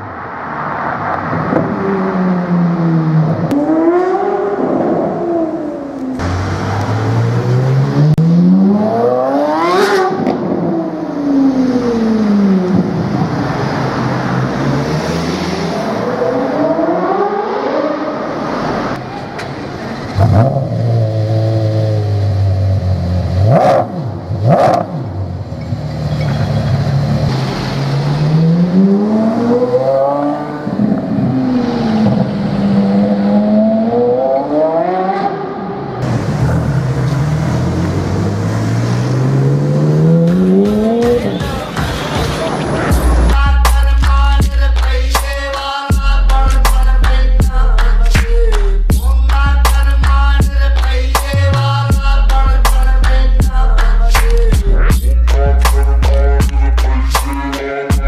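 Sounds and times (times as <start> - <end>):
sports car engine revving: 1.3 - 19.0, 20.0 - 41.4, 46.2 - 58.0
exhaust bangs: 34.8 - 45.4.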